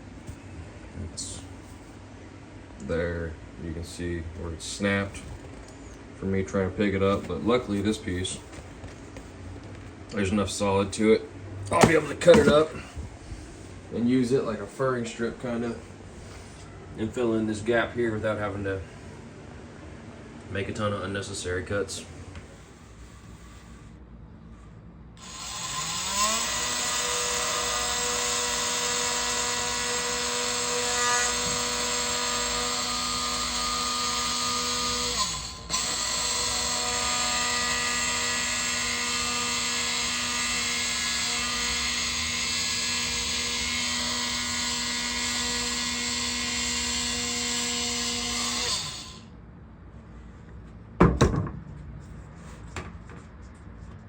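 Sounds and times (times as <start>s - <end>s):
power tool cutting floor tile: 25.2s - 49.2s.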